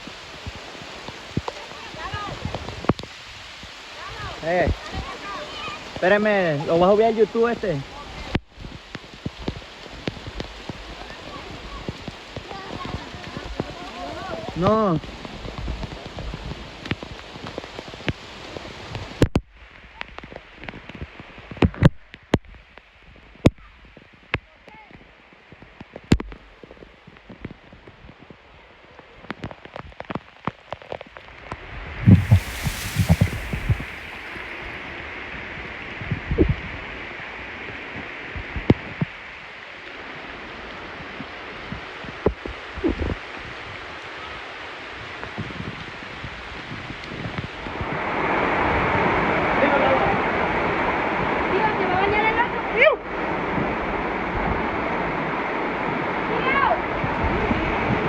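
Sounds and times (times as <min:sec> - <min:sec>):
rain falling: 0:00.0 - 0:21.5, 0:26.6 - 0:35.1
short low thuds: 0:32.1 - 0:34.7.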